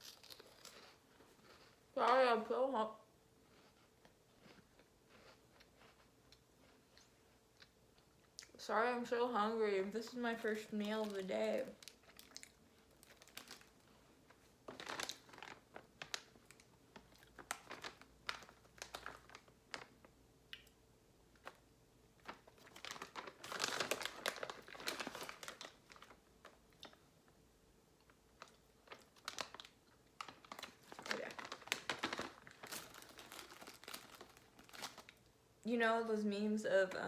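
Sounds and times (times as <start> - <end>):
crunching crackers: 0.0 - 2.0, 3.4 - 8.6, 10.0 - 27.2, 27.9 - 35.4
plastic bag crinkling: 10.0 - 20.1, 22.2 - 27.0, 28.4 - 35.3.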